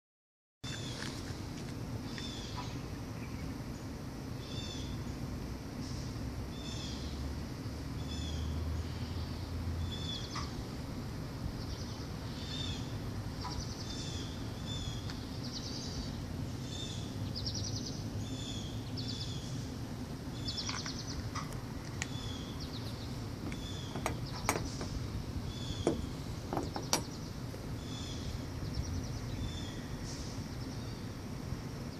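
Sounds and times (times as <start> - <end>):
low background rumble: 0.7 - 31.9
small bird chirping and trilling: 20.4 - 30.0.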